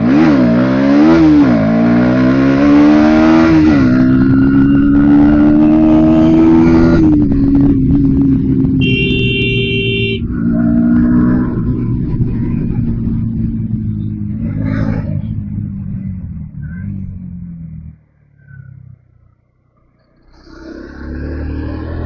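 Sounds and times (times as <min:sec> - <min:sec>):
traffic noise: 0:00.0 - 0:22.0
motorcycle engine running: 0:06.6 - 0:17.9
vehicle horn: 0:08.8 - 0:10.4.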